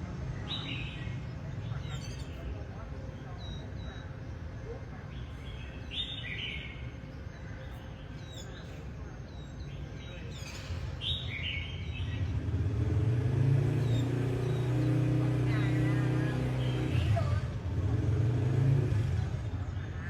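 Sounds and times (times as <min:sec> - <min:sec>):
low rumble of traffic: 0:00.0 - 0:20.0
small birds chirping: 0:00.3 - 0:20.0
vehicle engine hum: 0:11.9 - 0:20.0.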